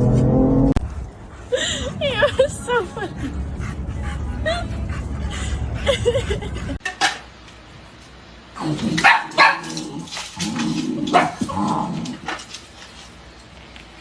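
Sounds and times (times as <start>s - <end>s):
dog barking: 9.0s - 9.8s, 11.1s - 11.4s.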